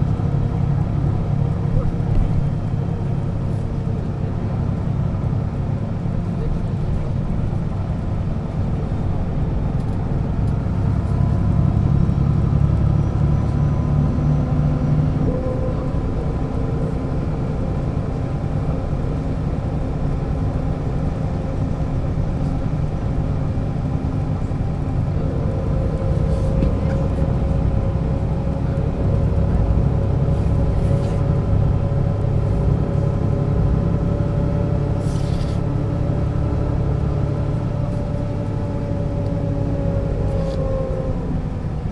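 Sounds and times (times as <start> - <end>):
bus engine drone with whine: 0.0 - 41.9.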